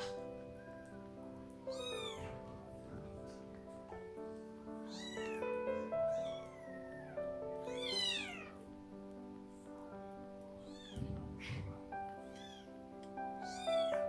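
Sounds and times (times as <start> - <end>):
background music: 0.0 - 14.0
kitten mewing: 1.7 - 2.5, 4.9 - 8.6, 10.6 - 12.8, 13.4 - 14.0.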